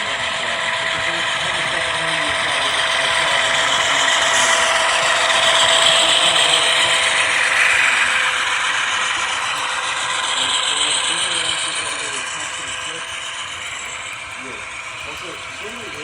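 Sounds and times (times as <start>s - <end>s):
model train whirring and rattling: 0.0s - 16.0s.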